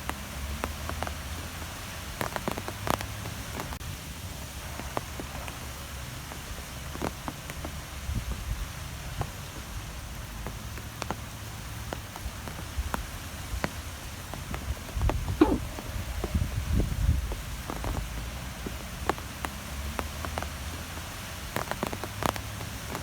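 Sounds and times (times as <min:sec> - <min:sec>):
rain-like hiss: 0:00.0 - 0:23.0.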